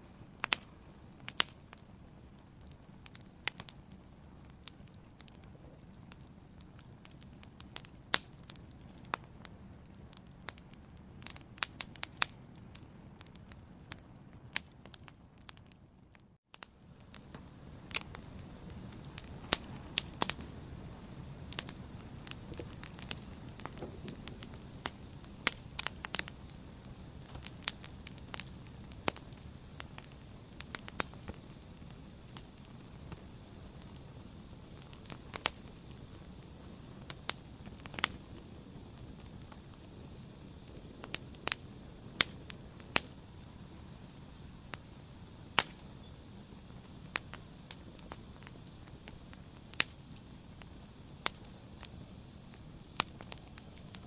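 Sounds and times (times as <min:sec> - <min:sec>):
wood fire burning: 0:00.0 - 0:54.0
logs crackling and popping: 0:00.2 - 0:54.0.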